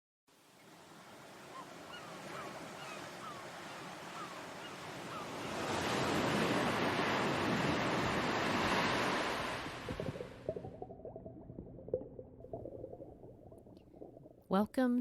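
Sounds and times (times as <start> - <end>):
surf rushing: 5.0 - 10.8.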